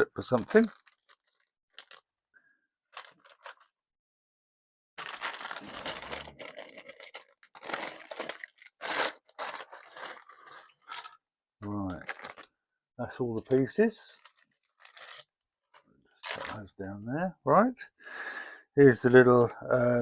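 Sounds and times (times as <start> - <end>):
plastic bags tearing: 0.2 - 2.0, 5.0 - 11.2, 11.9 - 12.5, 13.4 - 15.3, 16.2 - 16.6
plastic pieces clattering: 5.0 - 11.2, 11.8 - 12.5.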